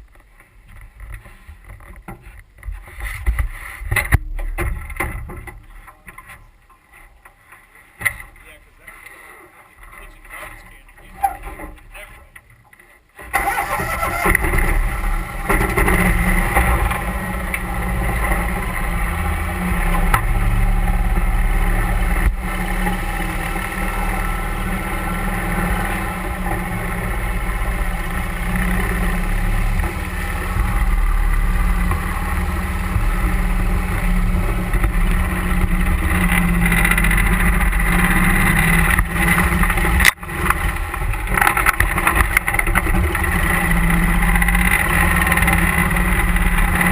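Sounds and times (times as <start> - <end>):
boat motor running: 13.4 - 46.9.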